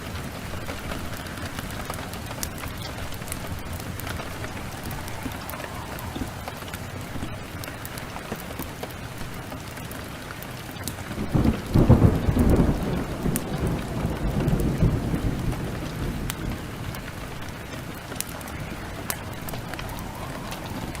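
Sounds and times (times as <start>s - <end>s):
thunder rumble: 0.0s - 10.2s, 11.0s - 21.0s
heavy rain: 0.0s - 21.0s.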